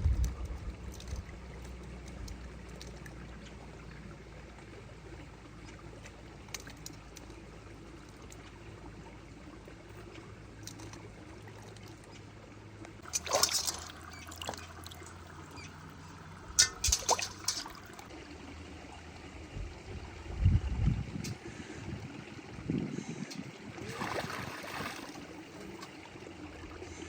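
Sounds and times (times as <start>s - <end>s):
water being poured: 13.0s - 18.2s, 23.8s - 26.0s.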